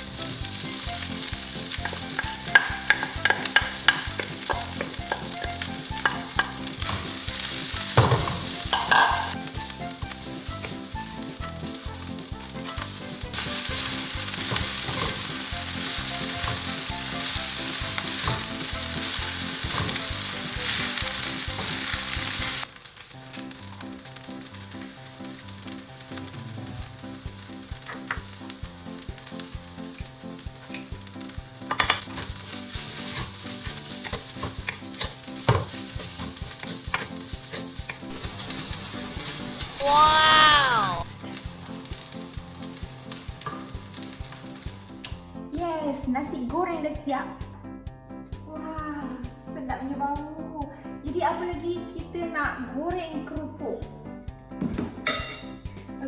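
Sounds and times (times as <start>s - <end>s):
spatula scraping a pan: 0.0s - 22.7s, 31.8s - 39.8s
fried rice sizzling in a pan: 0.0s - 45.3s.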